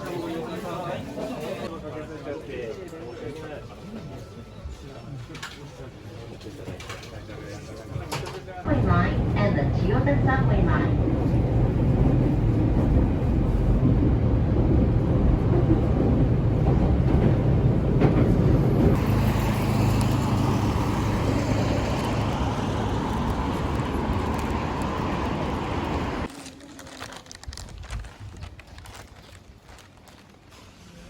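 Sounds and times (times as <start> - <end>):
subway train rumbling: 3.2 - 26.3.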